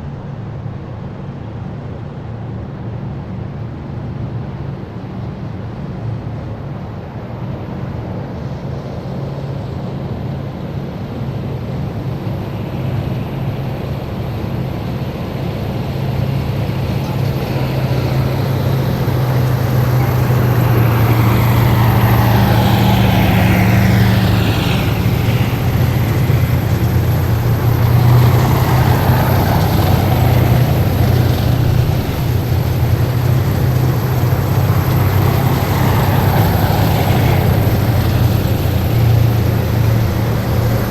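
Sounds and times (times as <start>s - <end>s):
heavy vehicles driving past: 8.5s - 40.9s.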